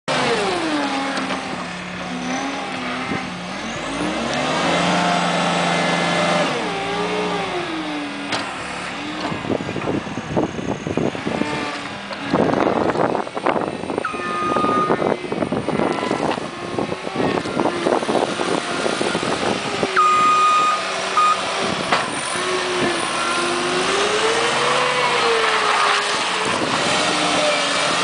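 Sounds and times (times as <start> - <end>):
loader engine revving: 0.1 - 28.0.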